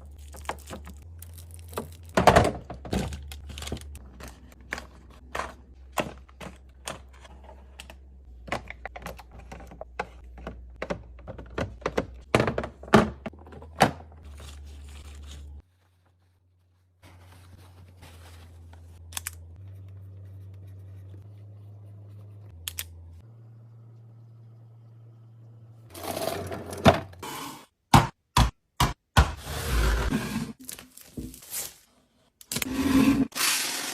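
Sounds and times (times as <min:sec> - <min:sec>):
food packages knocking and clicking: 0:08.3 - 0:14.1.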